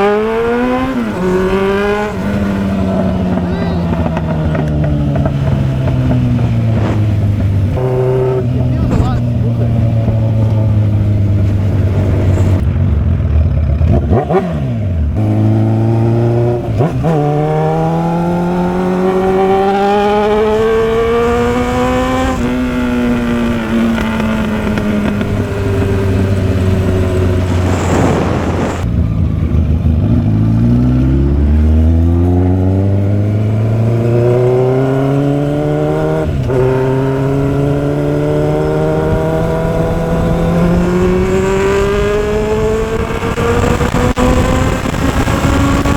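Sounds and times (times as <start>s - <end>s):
motorcycle engine revving: 0.0s - 45.9s
brief rush of noise: 27.1s - 28.8s.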